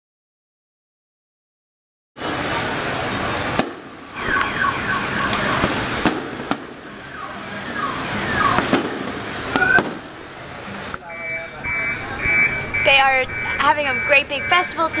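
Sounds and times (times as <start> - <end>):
fireworks bangs: 2.2 - 10.3
fireworks crackling: 2.2 - 11.0
car alarms sweeping tones: 4.1 - 15.0.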